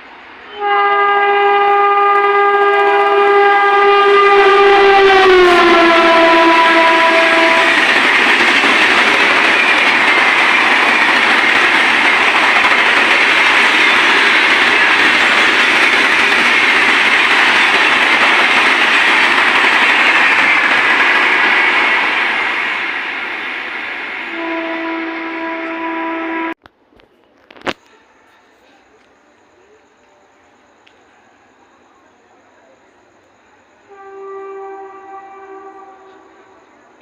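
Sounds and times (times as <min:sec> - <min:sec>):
train horn: 0:00.4 - 0:08.8, 0:24.3 - 0:26.6, 0:33.8 - 0:36.7
train coaches rushing and rattling: 0:02.0 - 0:25.9.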